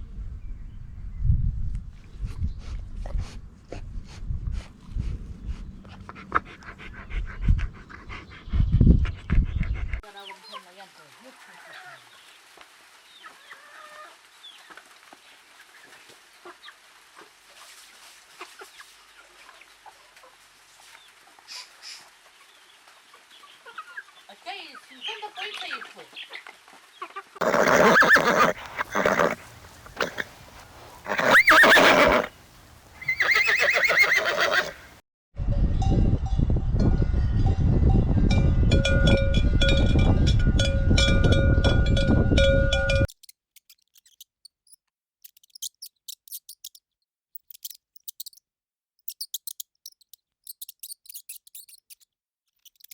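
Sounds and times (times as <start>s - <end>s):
horse whinnying: 27.4s - 32.4s, 33.0s - 35.0s
rapid ticking: 47.4s - 48.4s, 49.0s - 52.0s.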